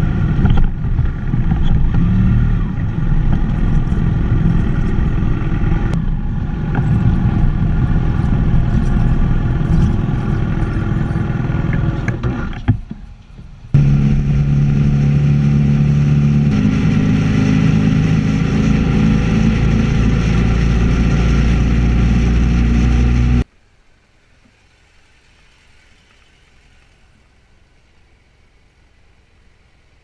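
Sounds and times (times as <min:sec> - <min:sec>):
motorcycle engine running: 0:00.0 - 0:12.3, 0:13.8 - 0:23.4
faint low hiss: 0:23.4 - 0:30.0.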